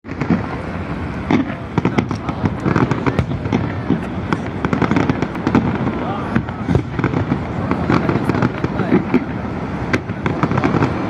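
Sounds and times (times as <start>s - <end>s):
fireworks popping and banging: 0.0s - 11.0s.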